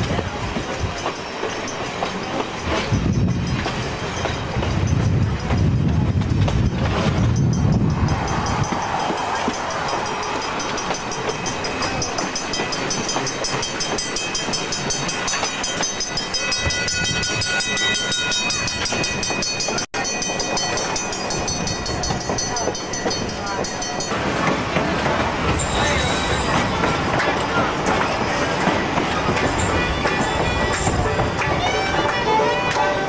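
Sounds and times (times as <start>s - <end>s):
train wheels clattering on rails: 0.0s - 33.0s.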